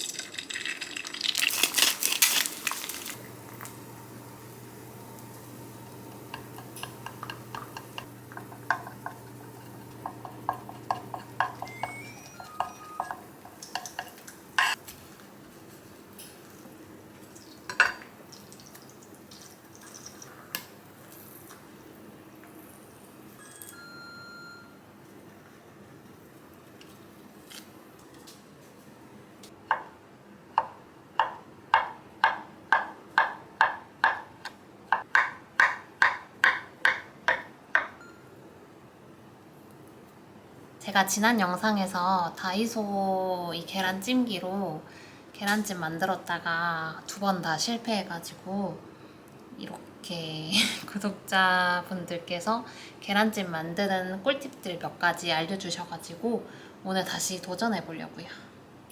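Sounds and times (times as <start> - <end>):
dishes clinking and clattering: 6.0 - 14.8, 17.4 - 18.1
short electronic beep: 11.7 - 13.1.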